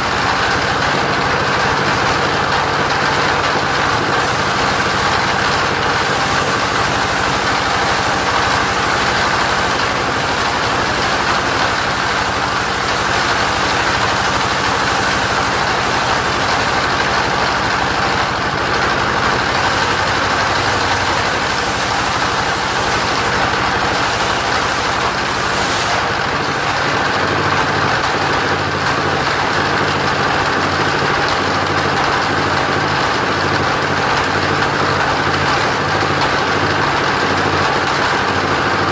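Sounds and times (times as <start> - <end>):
motorised saw engine running: 0.0 - 38.9.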